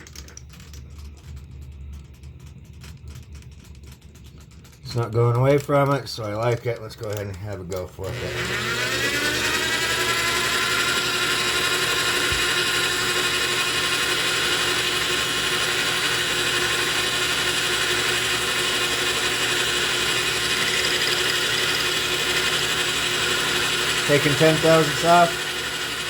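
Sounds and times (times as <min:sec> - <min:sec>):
metal lathe whining: 0:08.0 - 0:26.0.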